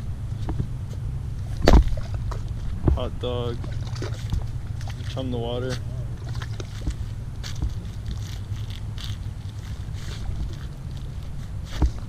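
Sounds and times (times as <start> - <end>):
wind buffeting the microphone: 0.0 - 12.0.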